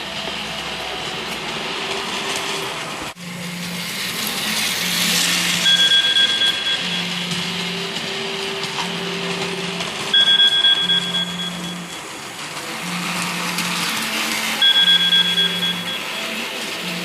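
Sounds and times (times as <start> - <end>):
model train mechanical whirr: 0.0 - 17.0
rapid electronic beeping: 5.0 - 8.0, 8.9 - 12.0, 13.3 - 16.4.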